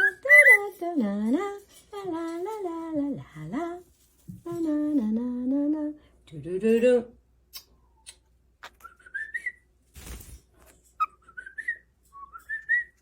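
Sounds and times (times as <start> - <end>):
cockatiel whistling: 0.0 - 0.6, 8.8 - 9.6.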